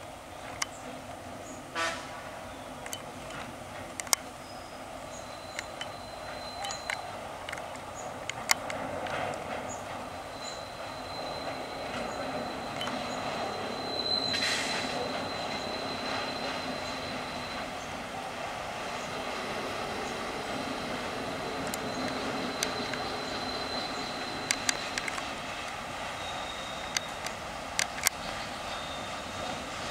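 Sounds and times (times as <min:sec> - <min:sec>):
diesel locomotive rumble: 0:00.0 - 0:29.9
high-pitched wheel squeal: 0:05.2 - 0:07.2, 0:10.3 - 0:17.9, 0:21.4 - 0:25.1, 0:26.2 - 0:27.3
brief hiss: 0:14.2 - 0:15.1
sharp clicks: 0:21.6 - 0:23.1, 0:24.3 - 0:25.8, 0:26.9 - 0:28.2.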